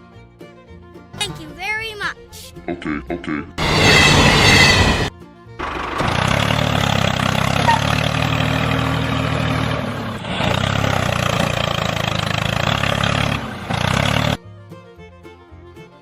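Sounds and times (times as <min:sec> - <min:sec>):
engine idling: 0:03.6 - 0:14.4.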